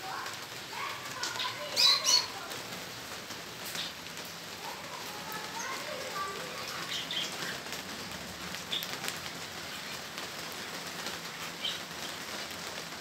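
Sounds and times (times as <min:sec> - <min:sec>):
small birds chirping: 0:00.2 - 0:02.7, 0:03.6 - 0:12.4.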